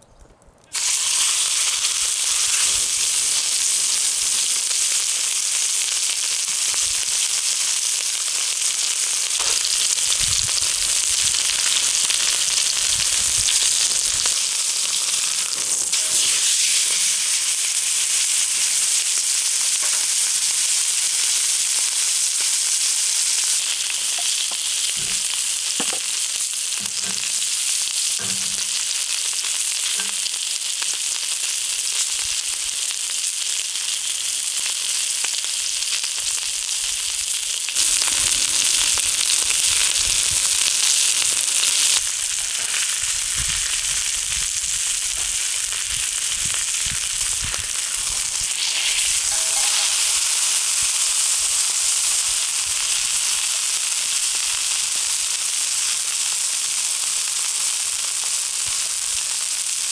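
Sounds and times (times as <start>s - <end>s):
steak sizzling on a griddle: 0.7s - 59.9s.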